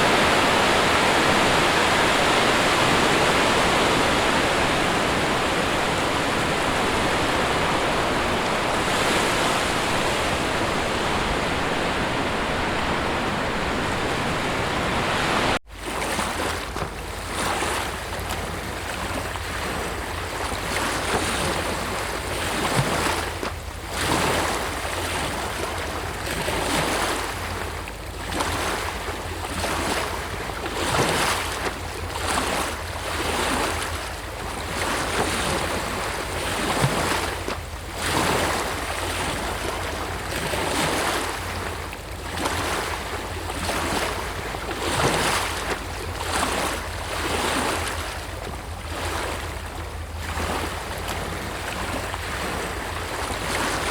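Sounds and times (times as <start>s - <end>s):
wind rumbling on microphone: 0.0s - 15.6s
dense rush of water: 0.0s - 53.9s
sea waves washing on shore: 0.0s - 53.9s.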